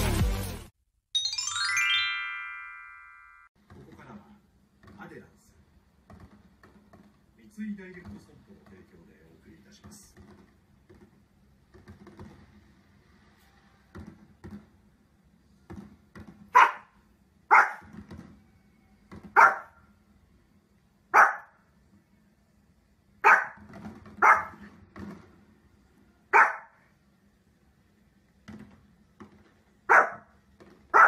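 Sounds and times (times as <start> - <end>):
small dog barking: 16.5 - 17.9, 19.4 - 19.8, 21.1 - 21.6, 23.2 - 23.6, 24.2 - 24.6, 26.3 - 26.8, 29.9 - 30.3.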